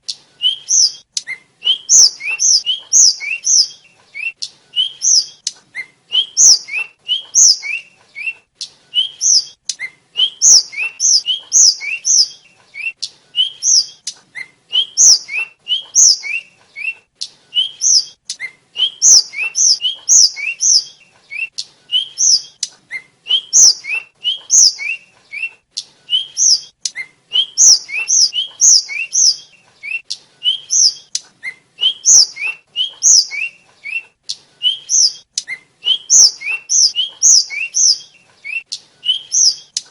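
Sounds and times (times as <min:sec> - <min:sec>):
flycatcher chirping: 0:27.6 - 0:29.4, 0:31.8 - 0:33.5, 0:36.1 - 0:38.1.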